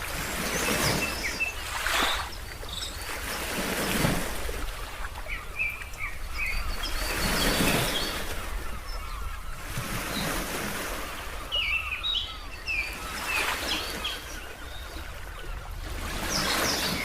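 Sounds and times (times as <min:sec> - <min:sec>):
ocean waves washing in: 0:00.0 - 0:05.2, 0:13.3 - 0:17.0
bird chirps: 0:05.2 - 0:10.3, 0:11.4 - 0:15.5.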